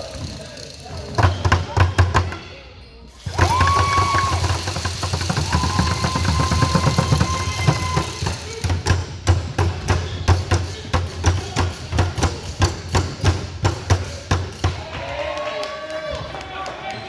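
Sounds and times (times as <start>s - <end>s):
basketball bouncing on gym floor: 1.0s - 2.4s, 3.3s - 15.1s.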